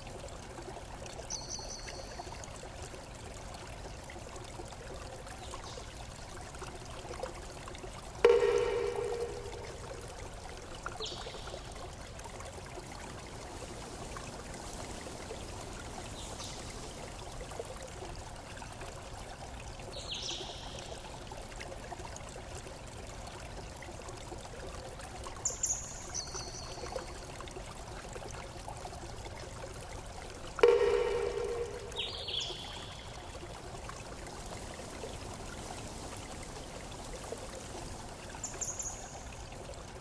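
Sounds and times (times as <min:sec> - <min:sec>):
stream flowing and trickling: 0:00.0 - 0:40.0
high bird chirps: 0:30.6 - 0:33.1.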